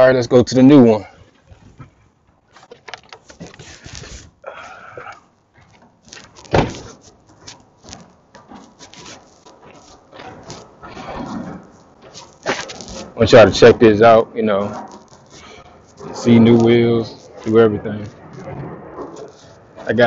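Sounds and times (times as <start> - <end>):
handheld camera knocks and rustles: 1.3 - 4.4, 5.1 - 13.2.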